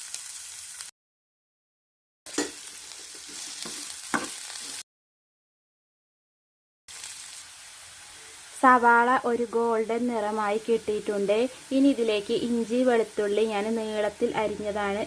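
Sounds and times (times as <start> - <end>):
onions sizzling in a pan: 0.0 - 0.9, 2.3 - 4.8, 6.9 - 15.0.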